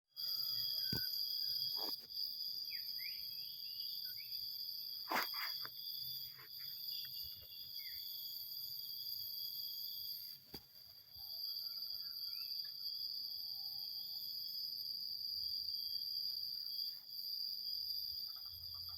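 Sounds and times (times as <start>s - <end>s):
insects trilling: 0.1s - 18.9s.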